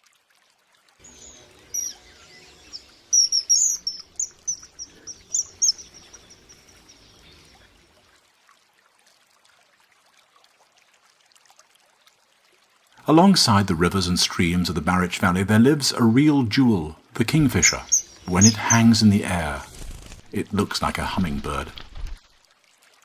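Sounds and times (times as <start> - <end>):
kingfisher shrill whistled calls: 1.1 - 7.1, 17.6 - 19.0.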